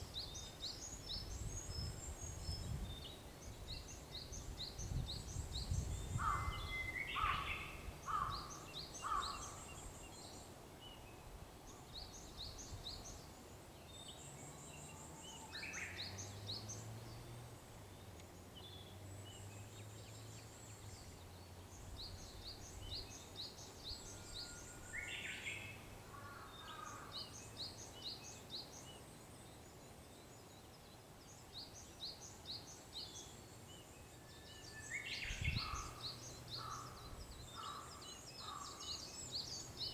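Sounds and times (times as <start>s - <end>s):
small birds chirping: 12.0s - 39.9s
warbler whistled song: 17.9s - 25.9s, 26.6s - 39.9s.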